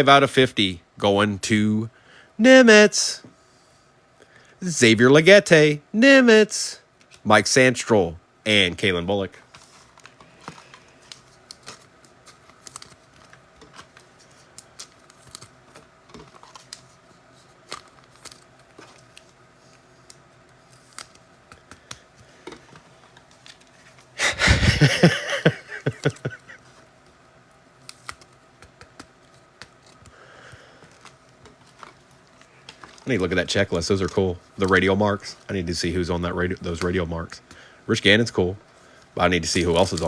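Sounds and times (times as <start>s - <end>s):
wrapper rustling: 9.5s - 21.9s, 29.2s - 35.7s, 39.4s - 40.0s.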